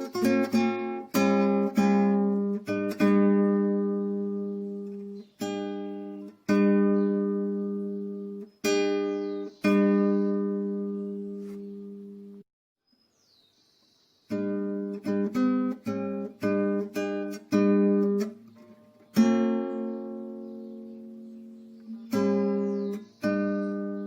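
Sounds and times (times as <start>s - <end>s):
acoustic guitar strummed chords: 0.0s - 12.4s, 14.3s - 24.0s.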